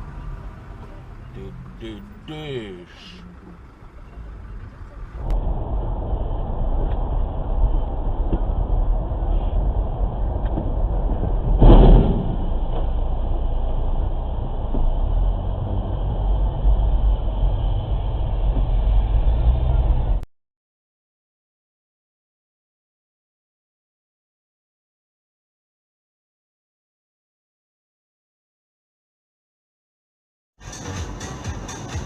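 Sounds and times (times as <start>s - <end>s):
vehicle road and engine rumble: 0.0s - 20.3s, 30.6s - 32.0s
loud thump: 11.5s - 13.0s.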